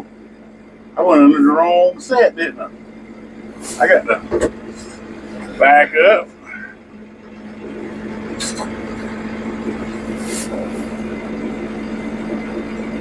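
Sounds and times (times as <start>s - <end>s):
tractor engine running: 0.0s - 13.0s
brief high hisses: 10.2s - 10.7s.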